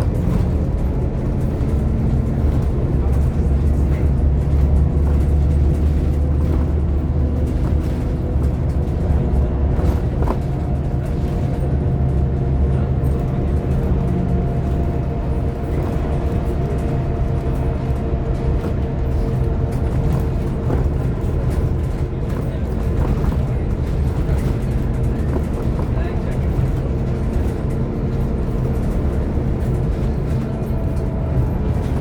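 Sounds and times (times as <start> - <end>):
bus diesel engine drone: 0.0 - 32.0.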